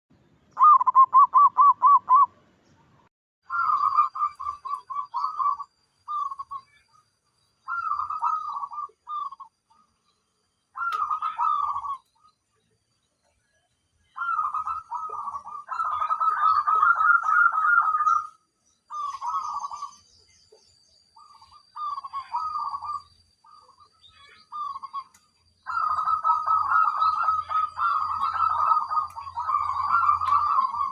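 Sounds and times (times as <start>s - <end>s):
dove cooing: 0.6s - 2.3s, 3.5s - 6.7s, 7.7s - 9.5s, 10.8s - 12.3s, 14.2s - 20.0s, 21.2s - 23.6s, 24.5s - 30.9s.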